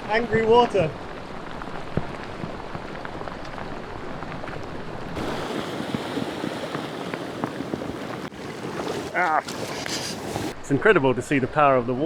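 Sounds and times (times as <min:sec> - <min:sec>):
flood water rushing: 0:05.2 - 0:10.6.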